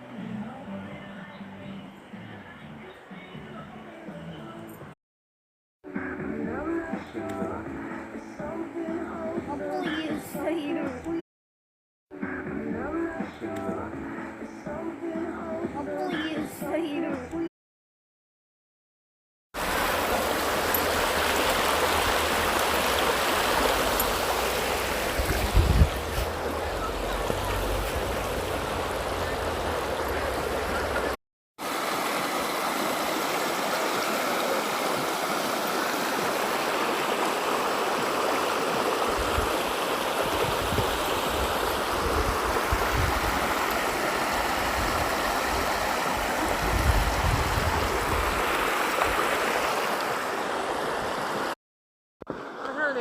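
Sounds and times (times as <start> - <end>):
river water rushing: 19.6 - 51.6.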